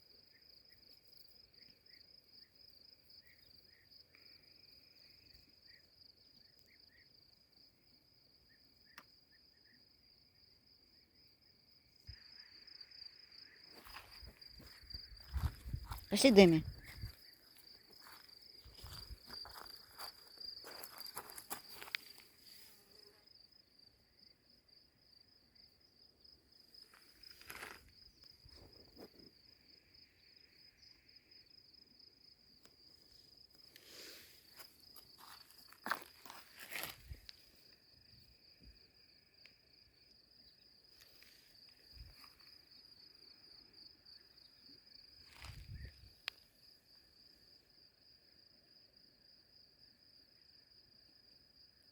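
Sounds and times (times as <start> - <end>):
cricket trilling: 0.0 - 51.9
footsteps: 13.7 - 22.8, 33.8 - 37.4.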